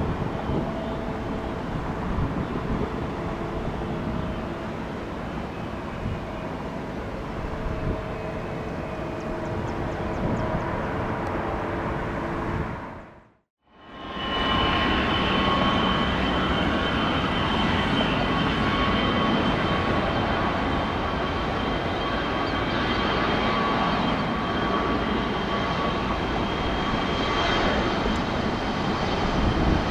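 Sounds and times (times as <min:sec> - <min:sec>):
high jet whine: 0:13.9 - 0:29.9
jet engines running: 0:14.0 - 0:29.9.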